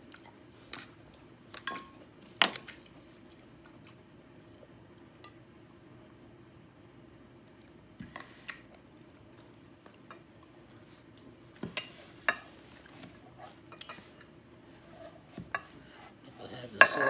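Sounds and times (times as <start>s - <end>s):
person chewing: 8.4s - 11.4s.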